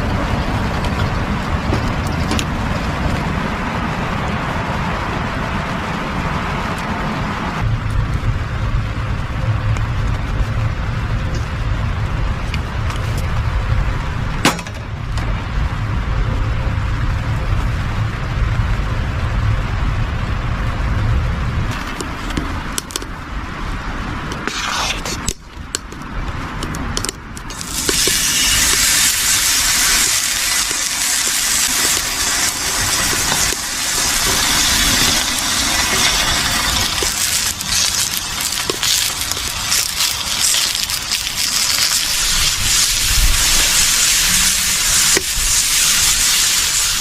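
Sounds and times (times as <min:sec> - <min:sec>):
food sizzling in hot pan: 0:27.5 - 0:47.0.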